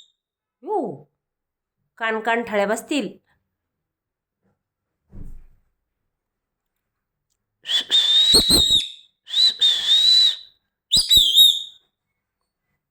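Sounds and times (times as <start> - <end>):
parrot whistling screeches: 7.7 - 11.8.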